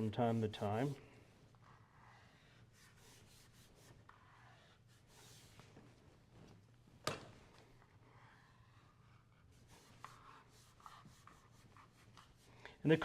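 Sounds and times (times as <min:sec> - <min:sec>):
hands rubbing leather: 0:02.0 - 0:06.6.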